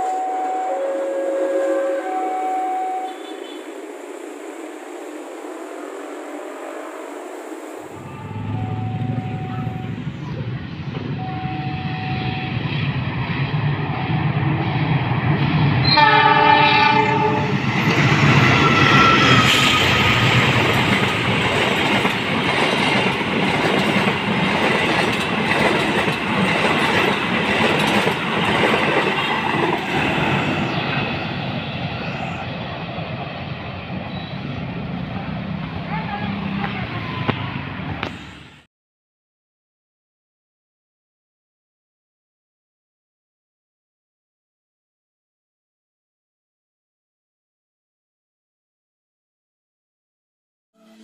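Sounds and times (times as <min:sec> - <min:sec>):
train horn blast: 0:00.0 - 0:03.7, 0:08.0 - 0:10.0, 0:11.2 - 0:12.7, 0:15.8 - 0:17.6, 0:50.8 - 0:51.0
train wheels rumbling and clattering: 0:17.1 - 0:38.0.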